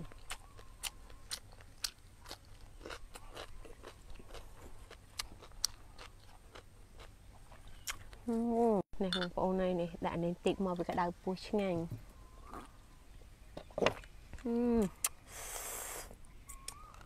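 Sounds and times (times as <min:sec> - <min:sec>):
crunching raw cucumber: 0:00.0 - 0:08.3, 0:16.4 - 0:17.0.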